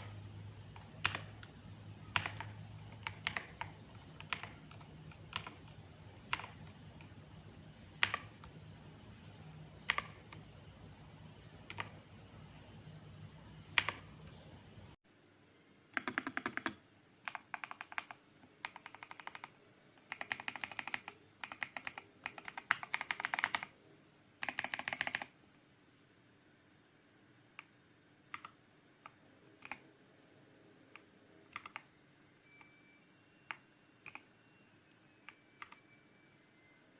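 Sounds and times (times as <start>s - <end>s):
mechanical keyboard keystrokes: 2.1s - 7.1s, 16.0s - 23.7s, 24.4s - 25.3s, 28.3s - 29.8s, 31.0s - 31.9s.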